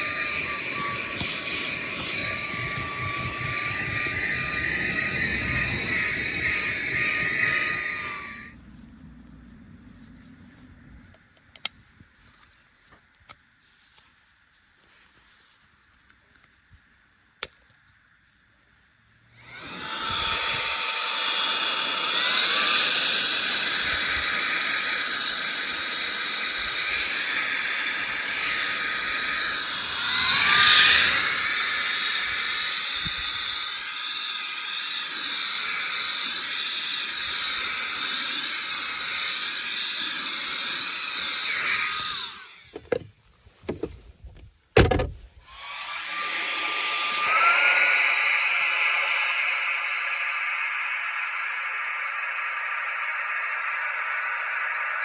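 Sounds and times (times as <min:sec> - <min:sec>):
handheld vacuum cleaner whining: 0:00.0 - 0:08.6, 0:19.4 - 0:43.1, 0:43.7 - 0:44.0, 0:44.8 - 0:55.0.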